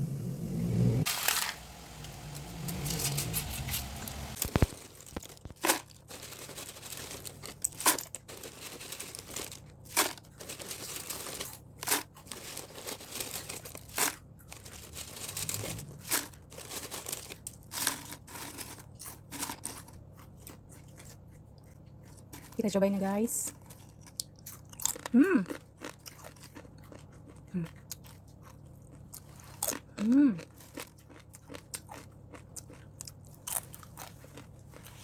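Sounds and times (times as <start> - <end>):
crinkling and rustling: 1.0 - 21.2.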